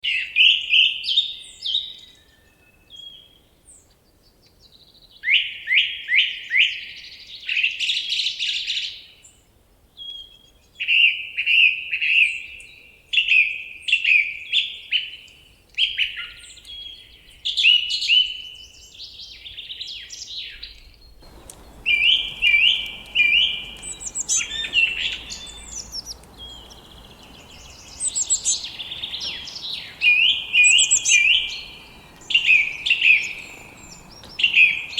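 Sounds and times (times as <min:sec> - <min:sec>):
songbirds singing: 0:20.6 - 0:34.9
steady background hiss: 0:21.2 - 0:34.9.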